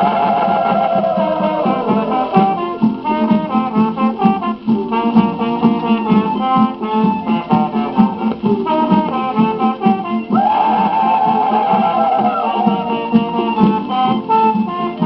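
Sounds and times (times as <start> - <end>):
small band playing old record: 0.0 - 15.0.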